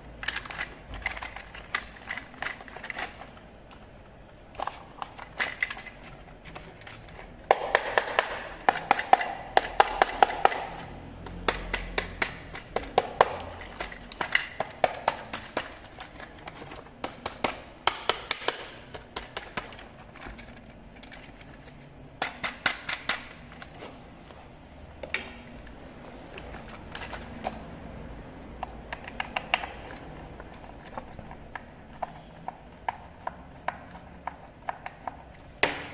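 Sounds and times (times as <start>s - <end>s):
hard plastic clicking and tapping: 4.6s - 21.6s, 28.5s - 35.9s.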